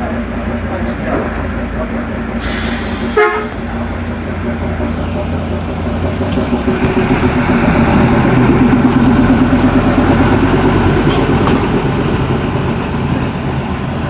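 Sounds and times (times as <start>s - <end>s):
diesel locomotive engine droning: 0.0s - 14.0s.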